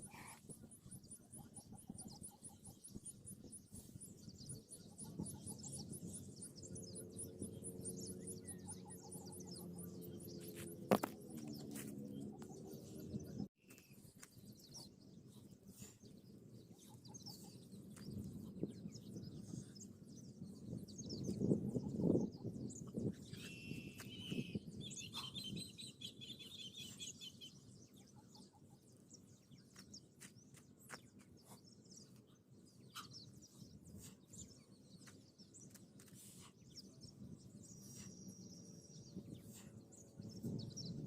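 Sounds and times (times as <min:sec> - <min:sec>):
faint bird chirps: 0:11.4 - 0:41.0.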